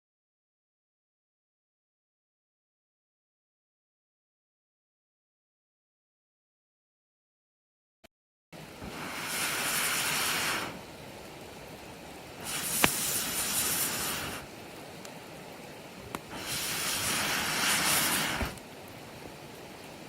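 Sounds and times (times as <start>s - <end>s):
rushing hiss: 8.6s - 20.0s
campfire crackling and popping: 8.8s - 20.0s.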